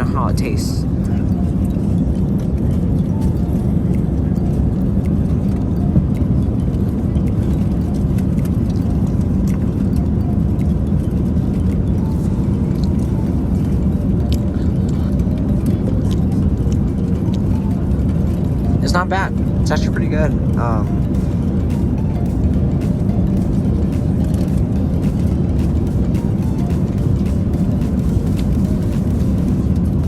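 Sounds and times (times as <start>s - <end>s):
airliner cabin rumble: 0.0s - 30.0s.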